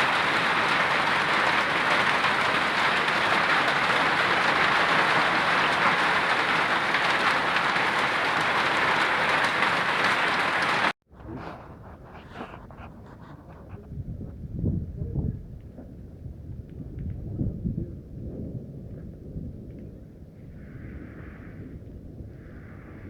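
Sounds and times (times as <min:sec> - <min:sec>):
hail and heavy rain pelting: 0:00.0 - 0:11.0.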